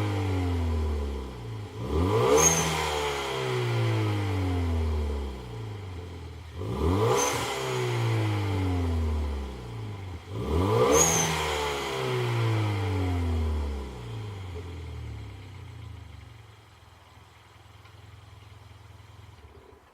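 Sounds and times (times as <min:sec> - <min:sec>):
car engine revving: 0:00.0 - 0:16.3
car engine idling: 0:03.8 - 0:07.0, 0:12.5 - 0:19.9.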